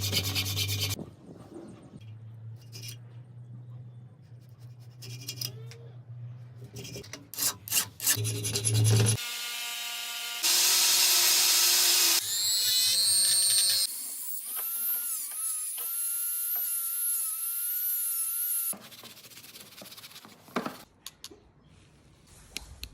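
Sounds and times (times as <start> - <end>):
power tool motor whine: 9.2 - 18.7.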